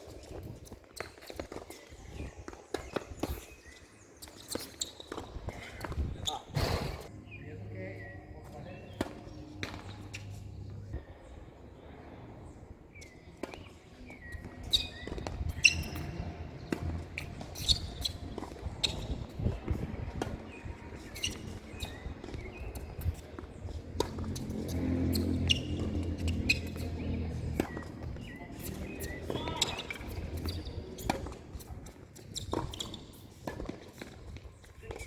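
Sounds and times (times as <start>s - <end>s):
birds chirping: 1.1s - 31.2s
tennis ball bouncing on court: 8.8s - 10.4s, 13.4s - 35.0s
tennis ball hit with rackets: 23.9s - 31.4s.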